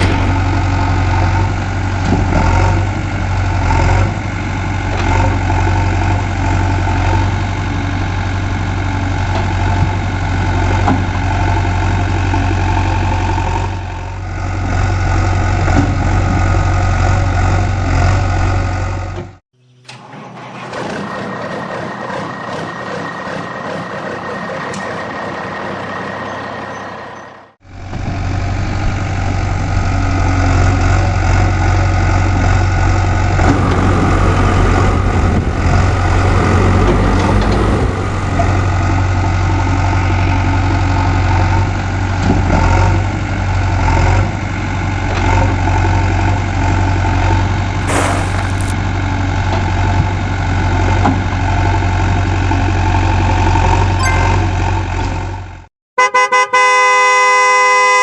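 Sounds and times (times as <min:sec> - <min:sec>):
heavy vehicle engine idling: 0:00.0 - 0:19.1, 0:28.4 - 0:42.2, 0:44.3 - 0:53.9.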